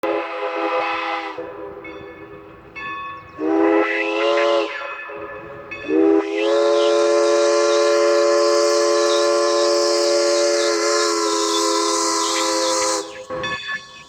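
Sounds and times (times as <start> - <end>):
steam locomotive whistle blasts: 0.0 - 2.4, 3.3 - 14.0
faint high whistle tones: 3.1 - 14.0.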